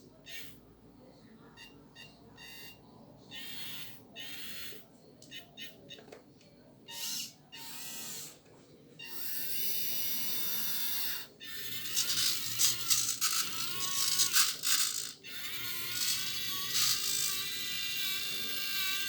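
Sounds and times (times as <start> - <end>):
small electric motors whining: 6.9 - 8.4, 9.0 - 19.0.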